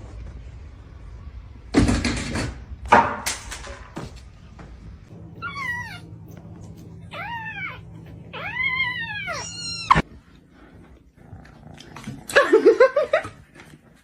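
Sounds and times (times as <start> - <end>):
cat meowing: 5.4 - 6.1, 7.0 - 10.0.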